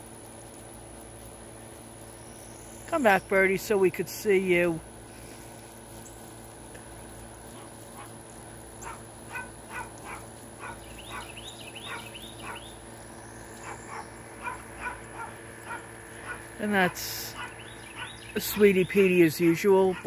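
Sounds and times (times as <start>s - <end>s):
dog barking: 7.6s - 8.2s, 8.8s - 12.7s, 13.6s - 16.5s, 17.4s - 18.2s.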